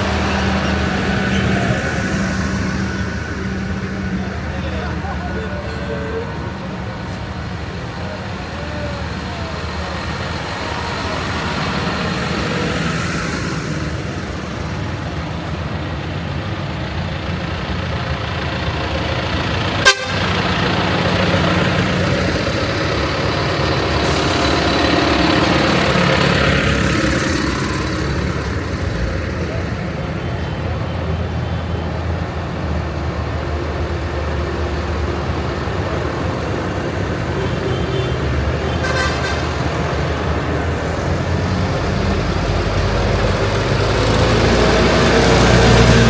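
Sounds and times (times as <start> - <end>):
tractor engines running: 0.0 - 46.0
vehicle horns tooting: 19.8 - 21.4, 37.3 - 40.0.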